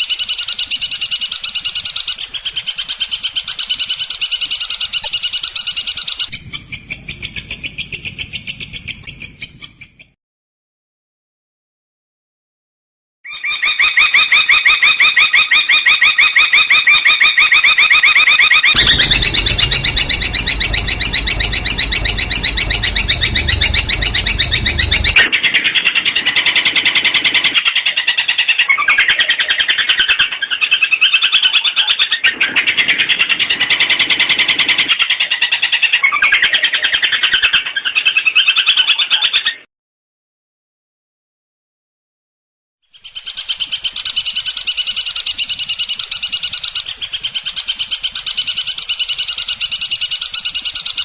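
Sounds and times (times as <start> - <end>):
shrike chattering song: 18.8 - 25.2.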